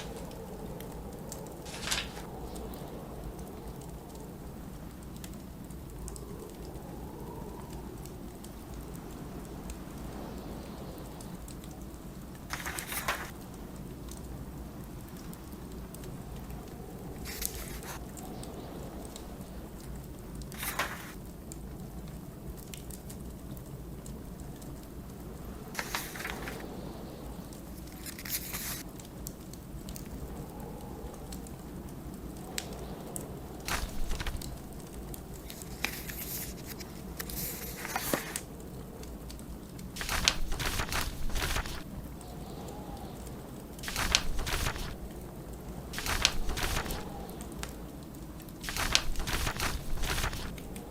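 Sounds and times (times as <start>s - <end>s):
book page turning: 0.0s - 0.4s, 1.6s - 2.4s, 12.5s - 13.4s, 17.2s - 18.0s, 20.5s - 21.2s, 25.8s - 26.6s, 27.8s - 28.8s, 33.7s - 34.6s, 35.5s - 38.4s, 40.0s - 41.9s, 43.8s - 45.0s, 46.0s - 47.2s, 48.6s - 50.6s
blizzard wind rumbling: 0.0s - 50.9s
wood fire crackling: 0.0s - 50.9s.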